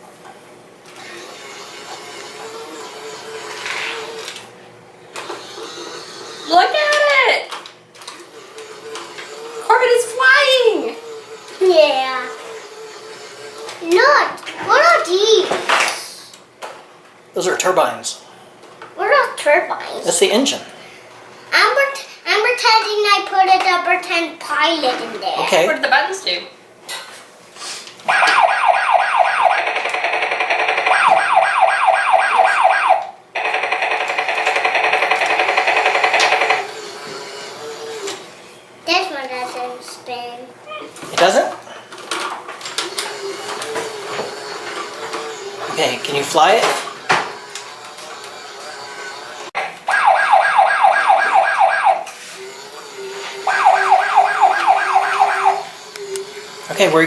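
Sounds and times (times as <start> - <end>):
toy electronic siren wails: 28.1 - 37.2, 49.9 - 56.5
steady buzzing: 42.8 - 57.0.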